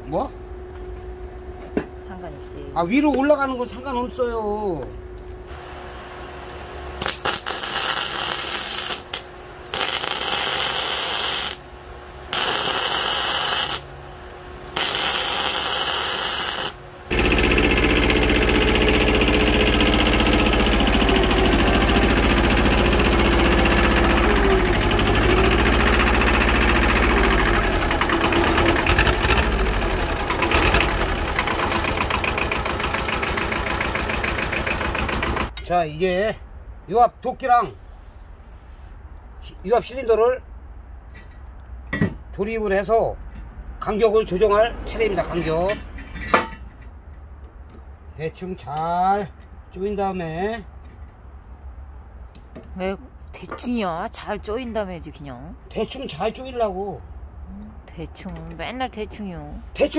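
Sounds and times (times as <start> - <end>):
loud machine pulsing: 5.5 - 35.5
arc welding crackle: 6.5 - 14.0, 14.7 - 23.8.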